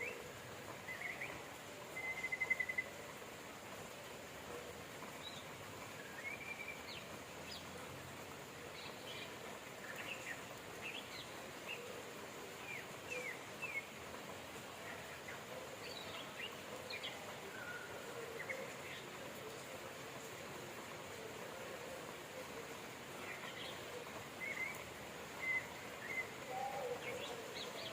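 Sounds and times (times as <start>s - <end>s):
rain hiss: 0.0s - 27.9s.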